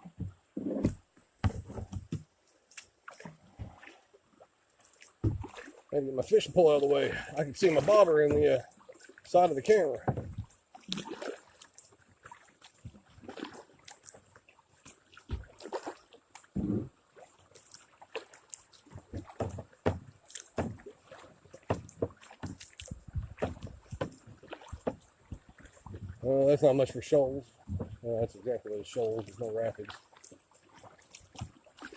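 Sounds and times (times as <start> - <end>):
paddle knocking on kayak: 0.0 - 2.3, 5.2 - 5.5, 7.6 - 8.6, 10.0 - 10.5, 18.9 - 26.3, 27.6 - 28.0
paddle splashing in water: 0.0 - 31.9.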